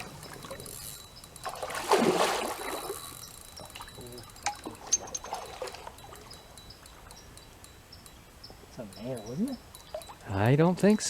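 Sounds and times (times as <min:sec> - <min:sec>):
water splashing and trickling: 0:00.0 - 0:07.2, 0:09.0 - 0:10.4.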